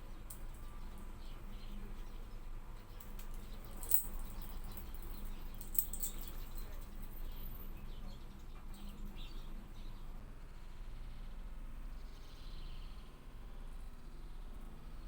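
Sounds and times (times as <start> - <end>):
faint low hum: 0.0 - 15.0
faint bird chirps: 0.5 - 15.0.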